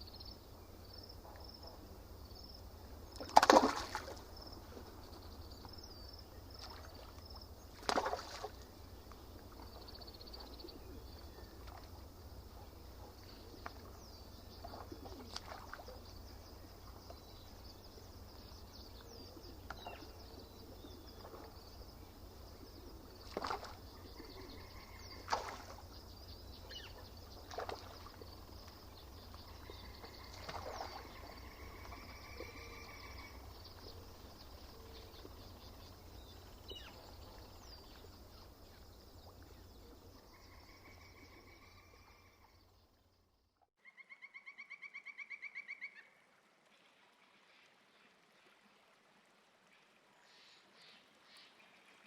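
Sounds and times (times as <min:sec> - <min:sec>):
small birds chirping: 0:00.0 - 0:42.8
water splashing at shore: 0:03.1 - 0:04.4, 0:06.5 - 0:08.7, 0:14.6 - 0:16.1, 0:23.2 - 0:23.9, 0:25.2 - 0:26.0, 0:27.4 - 0:28.8, 0:29.6 - 0:31.4.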